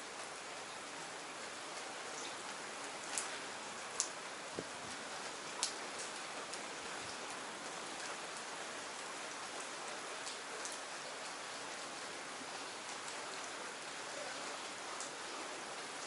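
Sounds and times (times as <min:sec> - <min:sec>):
raindrops ticking close by: 0:00.0 - 0:16.0
steady rain hissing: 0:00.0 - 0:16.0.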